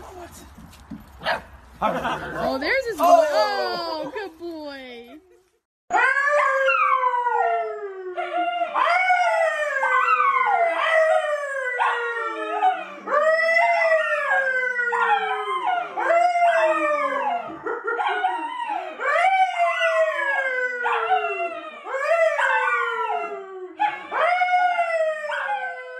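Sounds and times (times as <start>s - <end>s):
man howling: 2.0s - 4.1s
dog howling: 5.9s - 25.9s.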